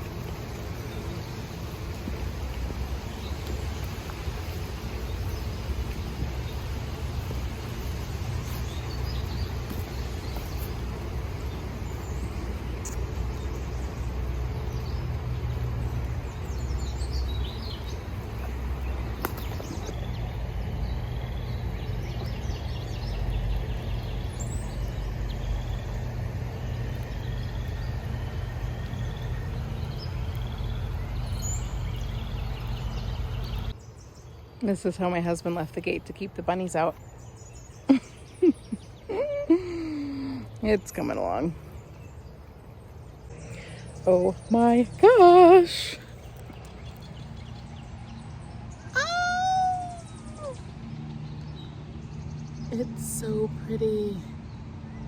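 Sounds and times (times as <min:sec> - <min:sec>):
steady low rumble: 0:00.0 - 0:34.6
birds chirping and singing: 0:00.2 - 0:55.0.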